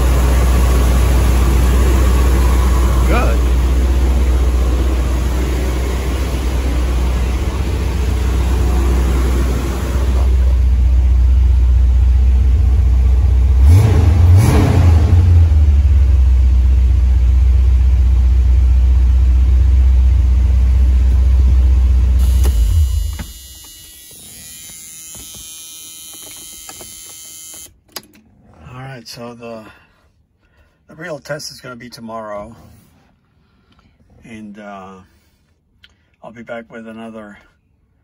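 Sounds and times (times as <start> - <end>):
car engine idling: 0.0 - 25.4
engine throttle blips: 0.0 - 27.7.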